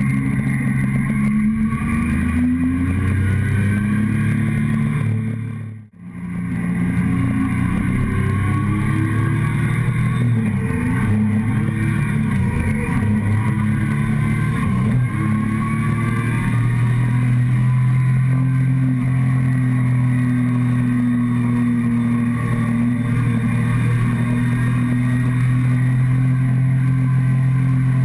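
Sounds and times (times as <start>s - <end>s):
motorcycle engine while riding: 0.0s - 28.0s.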